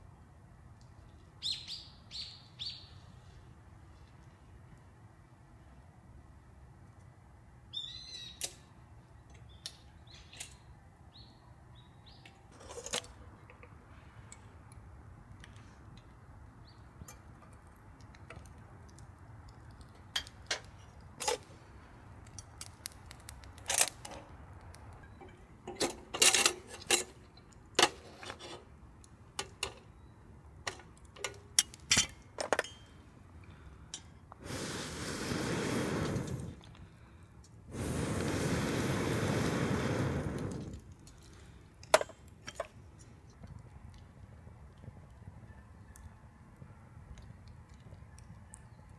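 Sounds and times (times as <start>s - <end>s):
small bird chirping: 1.4s - 3.0s, 7.7s - 8.4s.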